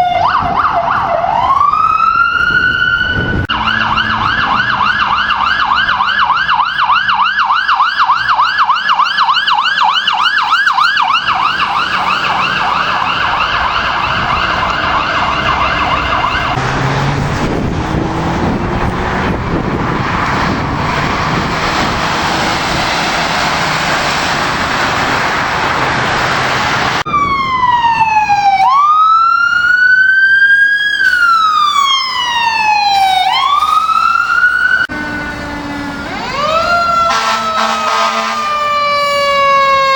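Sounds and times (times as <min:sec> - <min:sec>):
siren yelp: 0:00.0 - 0:16.7, 0:27.0 - 0:39.9
vehicle engine and road noise: 0:00.0 - 0:39.9
wail siren sweeping: 0:00.0 - 0:39.9.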